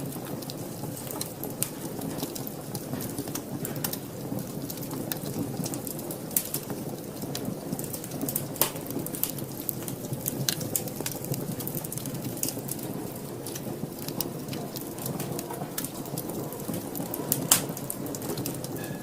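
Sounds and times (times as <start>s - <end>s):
fire crackles and pops: 0.0s - 19.0s
fire flames rushing: 0.0s - 19.0s.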